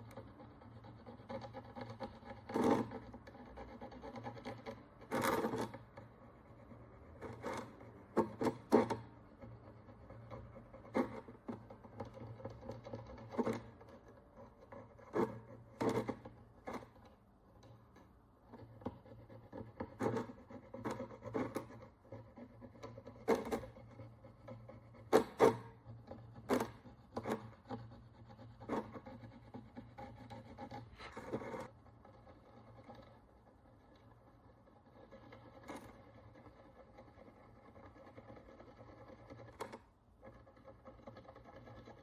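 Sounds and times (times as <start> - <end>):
tool scraping on coin: 0.0 - 5.9, 18.5 - 33.2.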